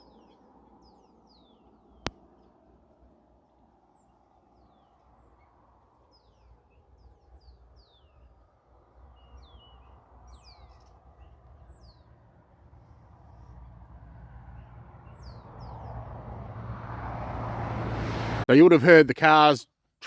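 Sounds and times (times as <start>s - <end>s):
small birds chirping: 0.0s - 2.6s, 3.5s - 8.4s, 9.0s - 12.2s, 14.5s - 16.0s
distant passing cars rumble: 9.0s - 18.5s.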